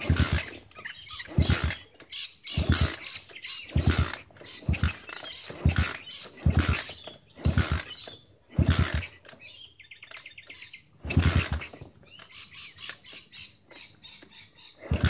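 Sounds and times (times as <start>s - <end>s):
motorbike kick-start sputtering: 0.0s - 15.0s.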